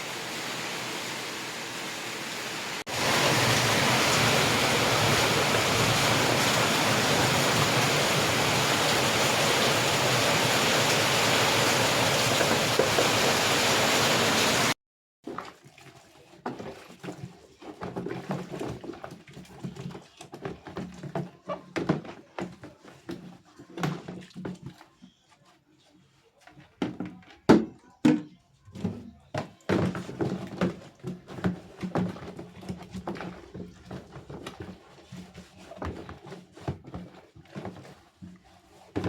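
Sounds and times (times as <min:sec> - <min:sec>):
rain pouring: 0:00.0 - 0:14.8.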